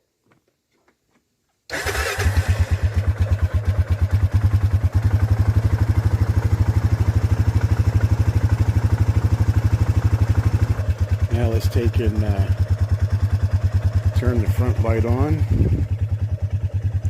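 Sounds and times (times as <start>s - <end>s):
dirt bike engine idling: 1.9s - 17.0s.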